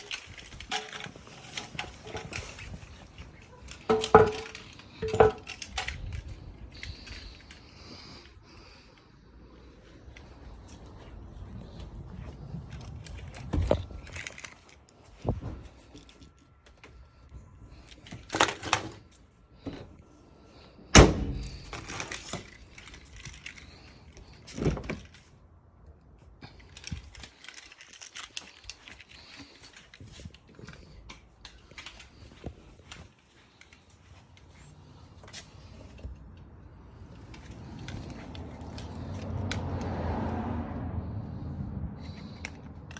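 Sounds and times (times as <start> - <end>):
objects knocking and rattling: 0.0 - 7.6.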